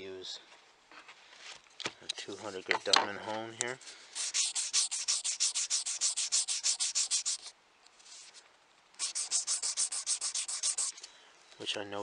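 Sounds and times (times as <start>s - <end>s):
wood rasping on sharpening hone: 4.2s - 7.5s, 9.0s - 10.9s.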